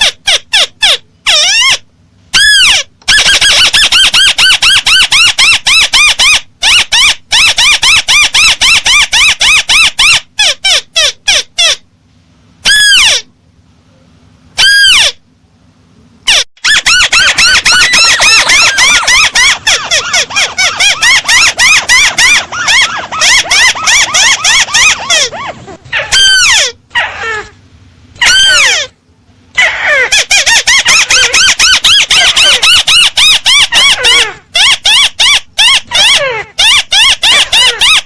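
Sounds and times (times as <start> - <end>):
crake call squeaky notes: 16.3 - 27.3.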